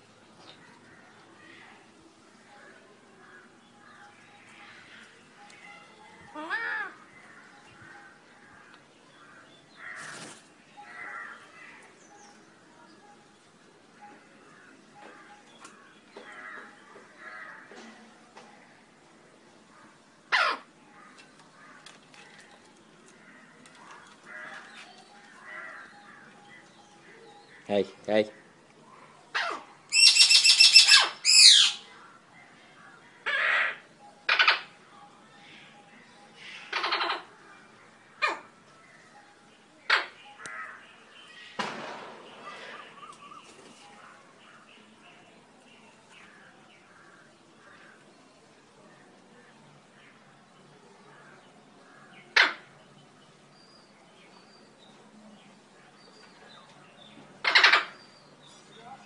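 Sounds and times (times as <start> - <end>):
small birds chirping: 19.5 - 59.0
parrot squawking: 29.4 - 31.8, 36.7 - 37.3, 57.4 - 58.0.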